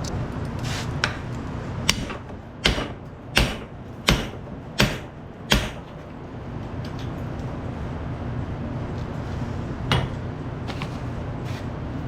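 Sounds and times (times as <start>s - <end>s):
steady low hum: 0.0s - 12.0s
hammer striking metal: 1.9s - 6.0s.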